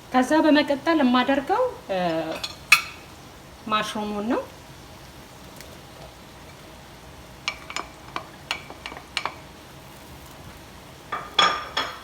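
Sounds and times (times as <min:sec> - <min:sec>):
pan and utensil clatter: 0:02.1 - 0:03.1, 0:07.4 - 0:10.2, 0:11.1 - 0:12.0
utensil clinking against pan: 0:07.4 - 0:09.4, 0:11.1 - 0:12.0.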